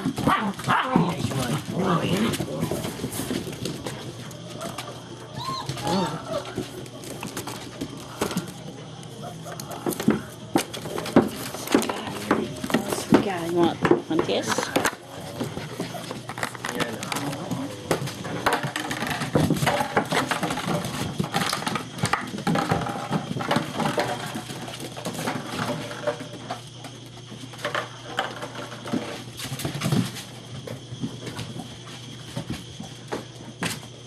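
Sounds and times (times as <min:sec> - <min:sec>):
puppy noises: 0:00.0 - 0:13.3, 0:14.4 - 0:22.9
paws scuffling and pattering: 0:14.3 - 0:18.2.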